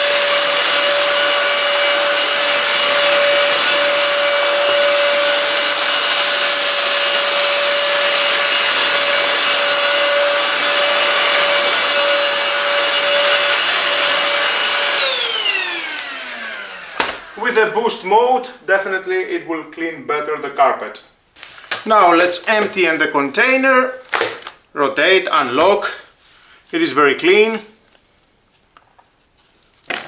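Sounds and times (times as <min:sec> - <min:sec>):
vacuum motor spinning down: 0:00.0 - 0:17.4
vacuum cleaner motor whine: 0:00.0 - 0:17.8.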